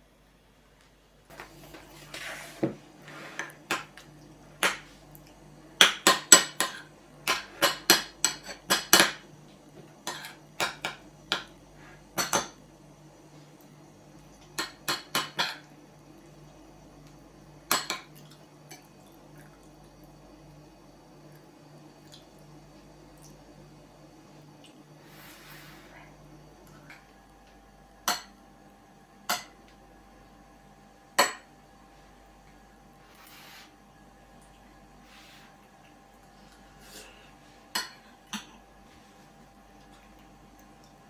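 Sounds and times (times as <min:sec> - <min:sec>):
steady low hum: 0:00.0 - 0:41.0
dishes and cutlery clinking: 0:10.1 - 0:11.5, 0:37.8 - 0:38.5.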